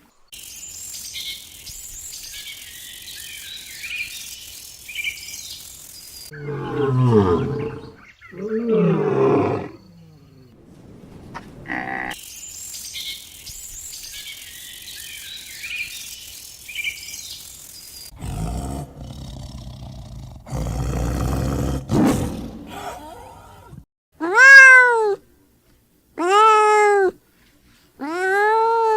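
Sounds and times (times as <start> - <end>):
faint high bird chirps: 0.3 - 8.7.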